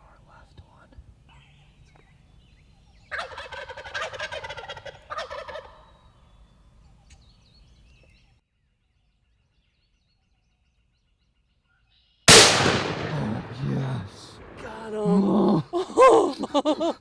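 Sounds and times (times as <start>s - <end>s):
turkey gobbling: 3.1s - 5.9s.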